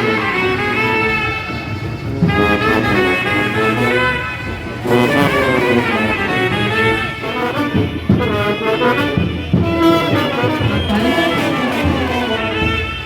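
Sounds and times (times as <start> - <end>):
brass band playing: 0.0 - 13.0
drum hits: 10.9 - 12.9.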